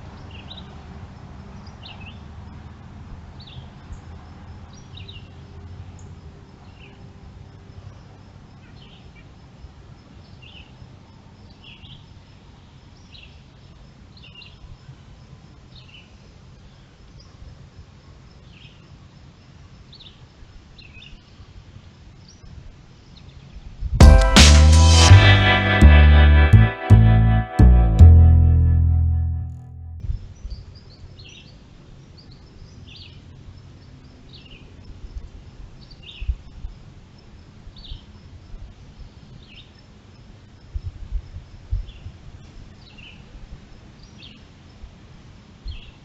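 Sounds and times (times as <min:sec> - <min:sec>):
loud music: 0:24.0 - 0:30.0.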